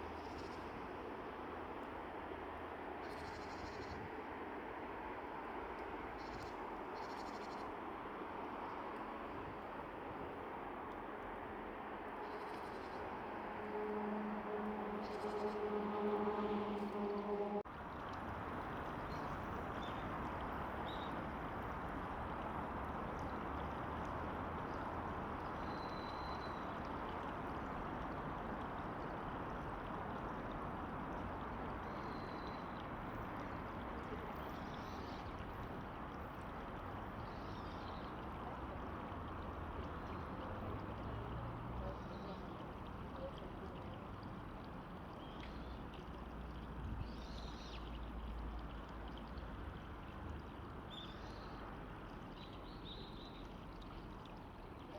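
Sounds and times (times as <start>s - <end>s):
river water rushing: 13.0s - 18.8s.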